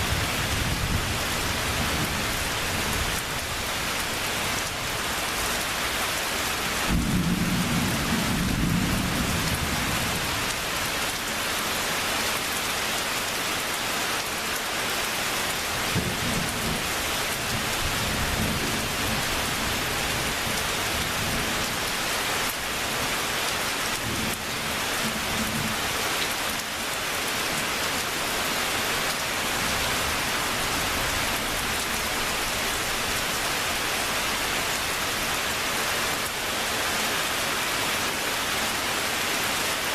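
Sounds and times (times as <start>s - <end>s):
heavy rain: 0.0s - 39.9s
rolling thunder: 6.9s - 10.0s.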